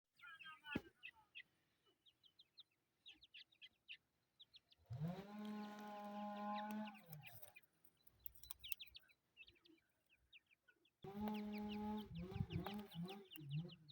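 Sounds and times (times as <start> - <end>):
chicks peeping: 0.2 - 13.9
steady low bird call: 8.6 - 13.9.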